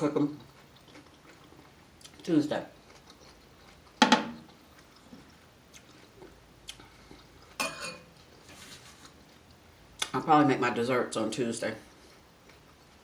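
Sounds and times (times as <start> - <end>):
chewing and mouth sounds: 0.2 - 7.6, 11.8 - 13.0.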